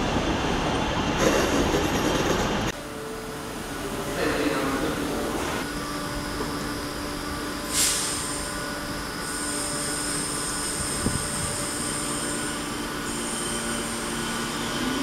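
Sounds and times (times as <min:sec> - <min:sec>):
train wheels squealing: 0:05.7 - 0:15.0
short hiss: 0:07.7 - 0:08.3.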